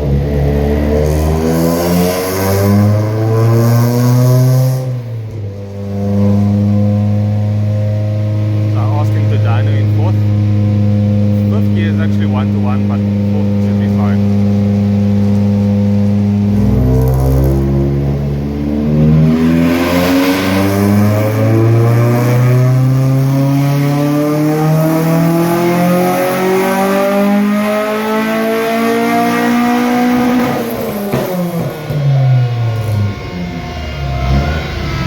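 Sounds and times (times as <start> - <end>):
car engine revving on dyno: 0.0 - 35.0.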